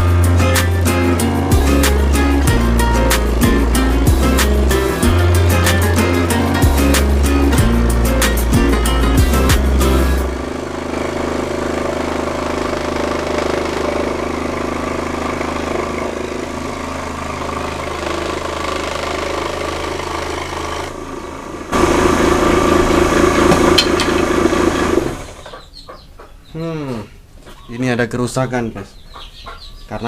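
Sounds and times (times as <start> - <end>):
scroll saw cutting wood: 10.0 - 25.5.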